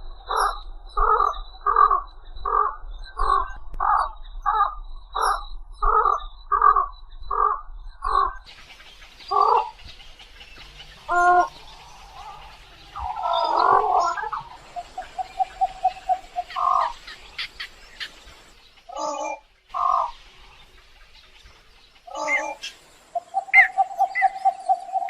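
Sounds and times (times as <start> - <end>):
wading bird cawing calls: 0.3 - 21.2, 21.9 - 25.0
background hiss: 8.4 - 25.0.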